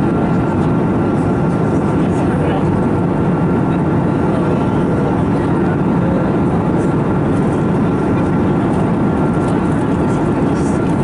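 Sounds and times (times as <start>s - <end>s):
aircraft cabin rumble: 0.0s - 11.0s.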